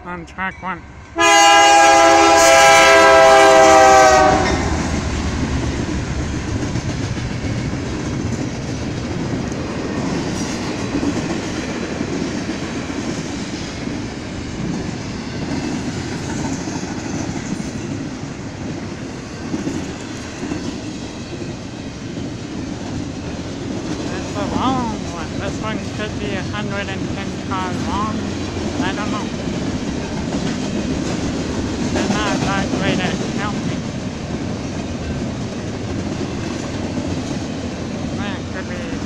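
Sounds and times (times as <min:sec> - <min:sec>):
freight train wheels rumbling: 0:01.0 - 0:39.0
train horn: 0:01.2 - 0:05.0.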